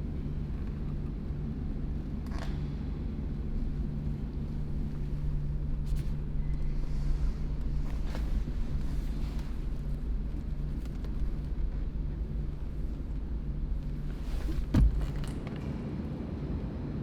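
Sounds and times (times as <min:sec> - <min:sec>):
low rumble: 0:00.0 - 0:15.6
loud thump: 0:14.4 - 0:15.4.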